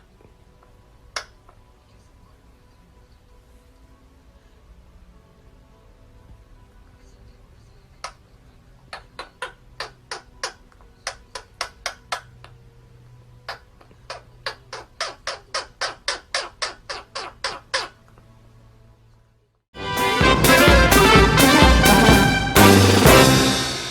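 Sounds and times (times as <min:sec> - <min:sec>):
parrot squawking: 0:13.5 - 0:18.0.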